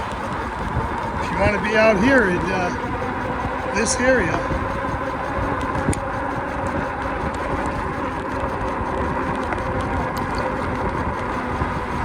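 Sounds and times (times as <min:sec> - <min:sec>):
faint steady whine: 0:00.0 - 0:12.0
wind and rolling rumble: 0:00.0 - 0:12.0.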